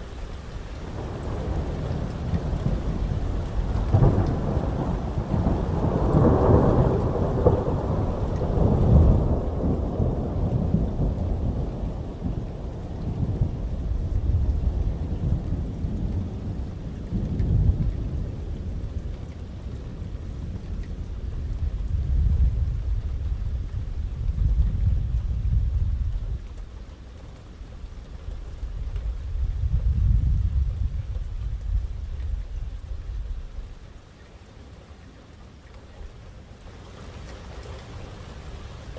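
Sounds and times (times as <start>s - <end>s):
thunder rumbling: 0.9s - 26.7s, 28.3s - 33.8s
heavy rain hiss: 26.6s - 38.9s.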